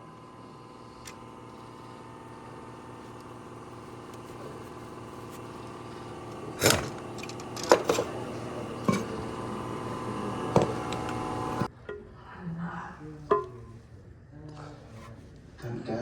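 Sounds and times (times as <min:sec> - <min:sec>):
metal tools clanking on engine: 0:05.5 - 0:09.3.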